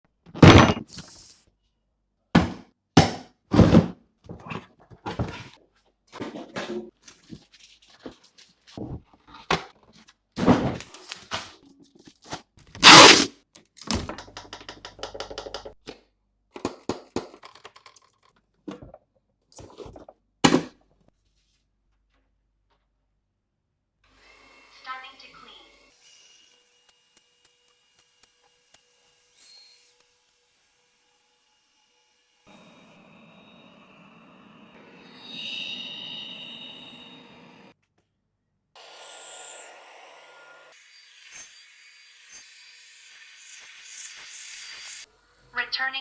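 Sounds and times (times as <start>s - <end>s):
box and parts thunking: 0.3s - 1.1s, 2.4s - 5.5s, 10.4s - 11.5s.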